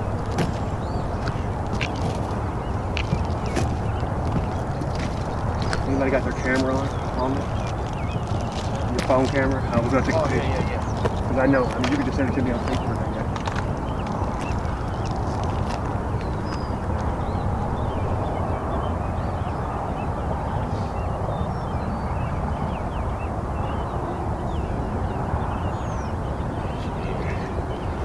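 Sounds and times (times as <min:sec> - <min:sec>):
low outdoor rumble: 0:00.0 - 0:19.4
small birds chirping: 0:00.0 - 0:28.0.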